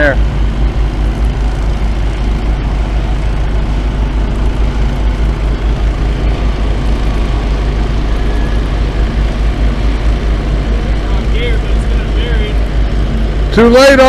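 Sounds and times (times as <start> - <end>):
construction machinery engine rumbling: 0.0 - 14.0.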